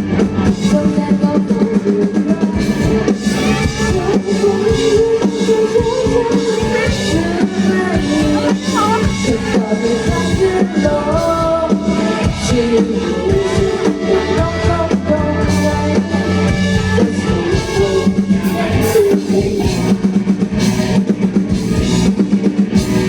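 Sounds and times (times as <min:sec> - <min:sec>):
bass guitar: 0:00.0 - 0:23.0
drums: 0:00.0 - 0:23.0
electric guitar: 0:00.0 - 0:23.0
person singing: 0:03.7 - 0:20.0.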